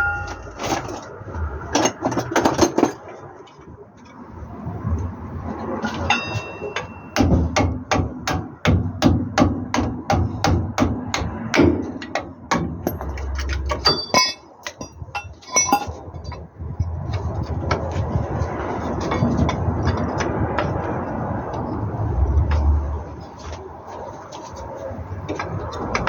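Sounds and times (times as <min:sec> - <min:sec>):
hammer striking metal: 0:00.0 - 0:00.6, 0:06.1 - 0:16.0
metallic clinks: 0:12.8 - 0:16.4.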